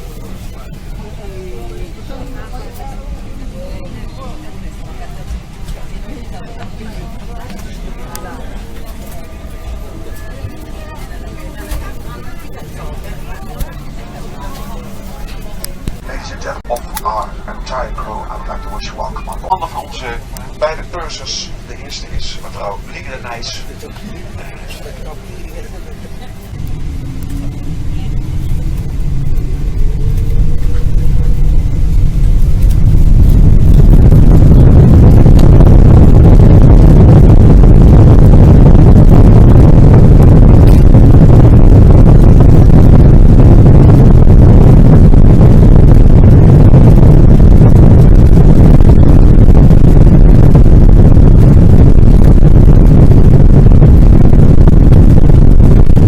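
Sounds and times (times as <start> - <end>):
airplane cabin rumble: 0.0 - 56.0
faint rising engine tone: 24.2 - 47.7.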